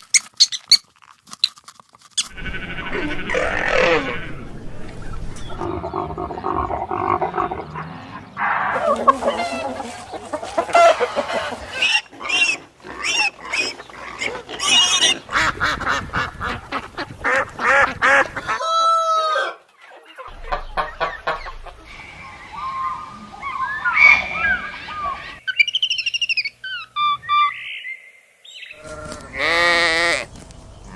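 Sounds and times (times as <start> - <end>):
drawn-out wavering animal call: 2.2 - 15.4
farm animal calls: 2.2 - 27.9, 28.7 - 30.9
chicken clucking: 2.3 - 12.6, 19.4 - 22.0.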